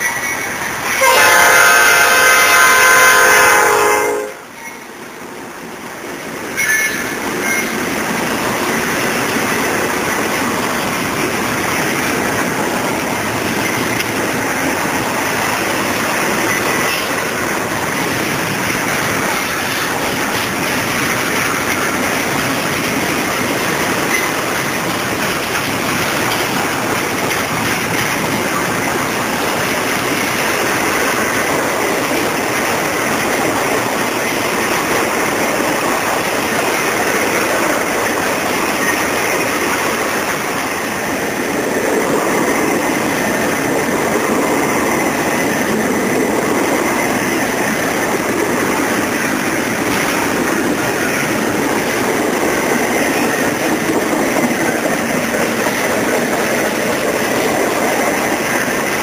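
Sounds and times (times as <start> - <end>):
freight train wheels on track: 0.0 - 59.0.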